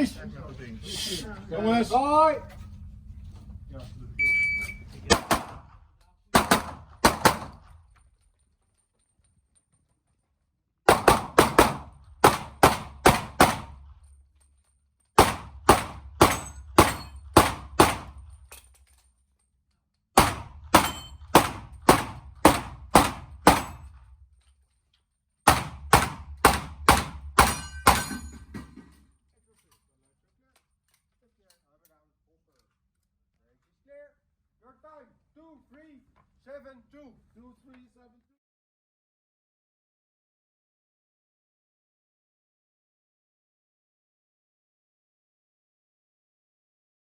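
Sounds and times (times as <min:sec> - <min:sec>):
pistol shots with echo: 0:05.1 - 0:05.8, 0:06.4 - 0:07.7, 0:10.9 - 0:13.8, 0:15.2 - 0:18.2, 0:20.2 - 0:23.9, 0:25.5 - 0:28.2.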